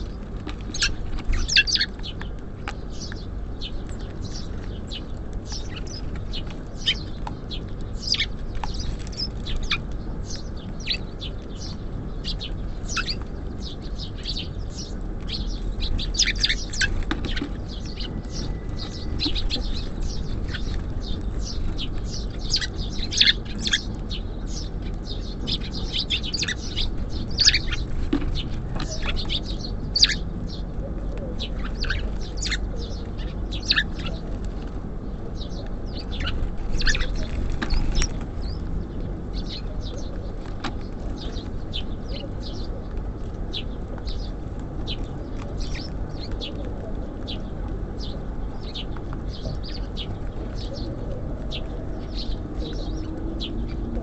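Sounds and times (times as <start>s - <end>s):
low background hum: 0.0s - 54.0s
small songbirds chirping: 0.0s - 54.0s.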